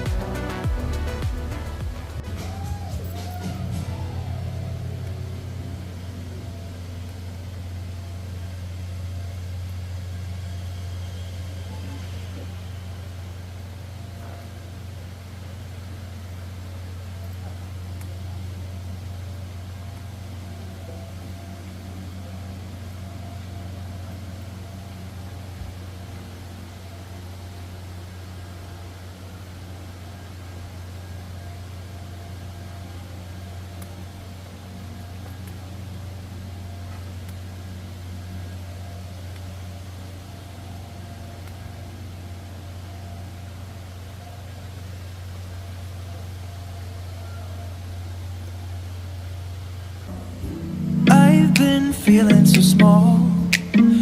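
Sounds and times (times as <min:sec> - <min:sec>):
car engine hum: 0:00.0 - 0:10.9
road noise: 0:00.0 - 0:30.4, 0:49.0 - 0:54.0
car drone from inside cabin: 0:00.0 - 0:30.6, 0:49.8 - 0:54.0.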